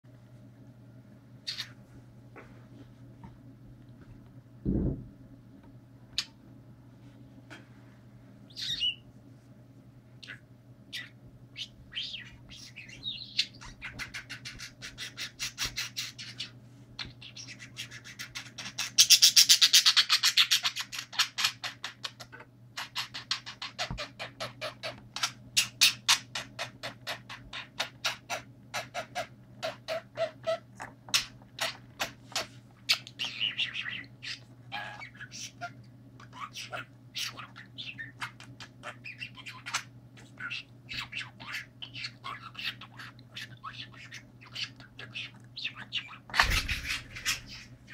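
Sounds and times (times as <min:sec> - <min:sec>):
budgerigar chirping and warbling: 0:01.5 - 0:01.8, 0:08.5 - 0:09.0, 0:10.2 - 0:47.9.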